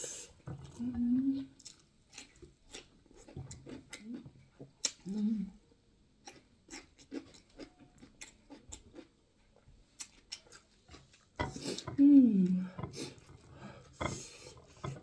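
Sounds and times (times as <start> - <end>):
person humming mmm: 5.1 - 5.6.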